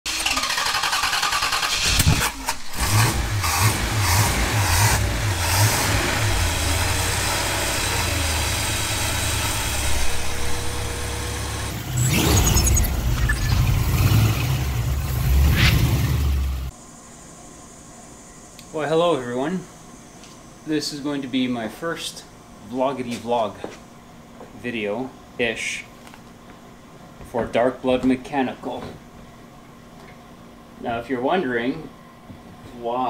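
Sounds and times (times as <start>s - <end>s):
engine cranking and running: 0.1s - 16.7s
engine revving: 0.2s - 16.7s.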